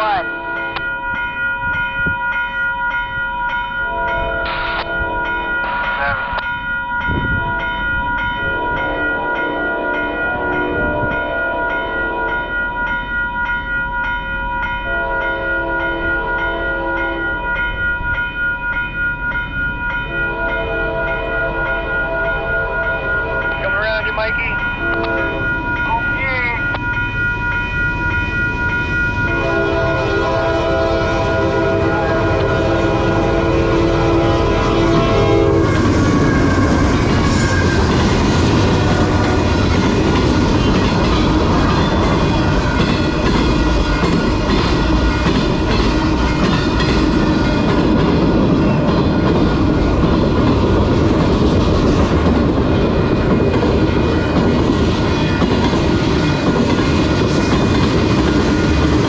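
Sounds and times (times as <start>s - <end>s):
train passing with rumble: 0.0s - 59.0s
locomotive horn chord: 8.4s - 12.6s, 14.9s - 17.3s, 20.1s - 24.1s, 24.8s - 25.5s, 29.3s - 37.7s, 38.6s - 39.7s.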